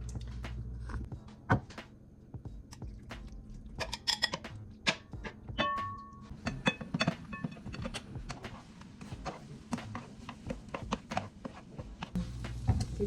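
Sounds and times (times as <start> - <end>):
cookware and utensils clicking: 3.8 - 8.5.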